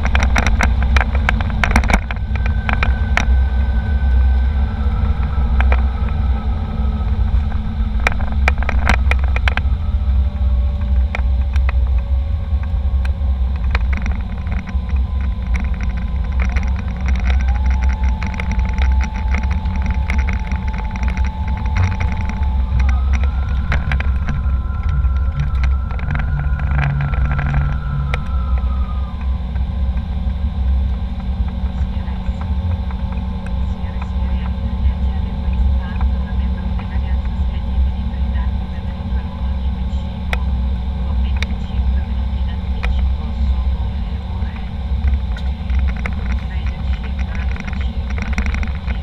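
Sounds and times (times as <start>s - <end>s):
airliner cabin rumble: 0.0s - 49.0s
jet engine whine: 0.0s - 49.0s.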